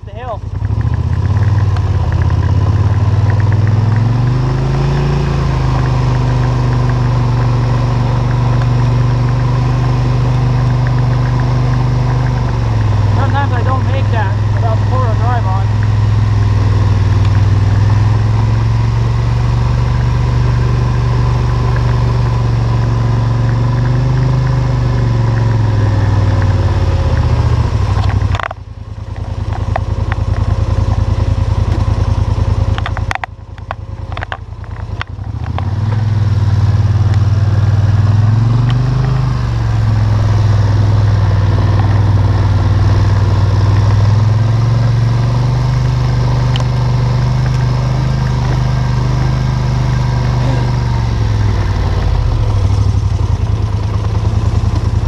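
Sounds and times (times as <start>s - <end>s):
atv engine under load: 0.0s - 55.0s
clicks and rattles: 32.6s - 36.0s.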